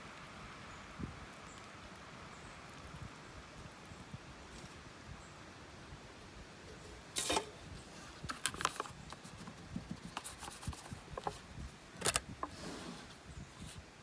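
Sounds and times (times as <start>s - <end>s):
firewood cracking: 6.1s - 13.9s
scraping rustles: 6.2s - 14.0s.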